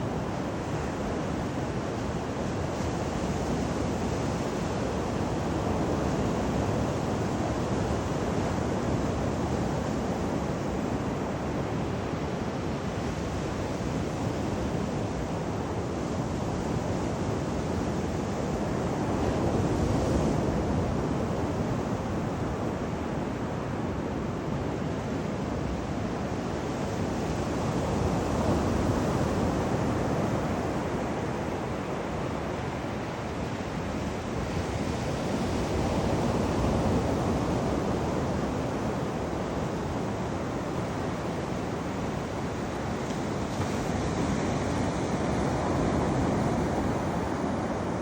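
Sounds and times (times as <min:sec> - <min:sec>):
wind on microphone: 0:00.0 - 0:48.0
surf washing onto beach: 0:25.2 - 0:48.0.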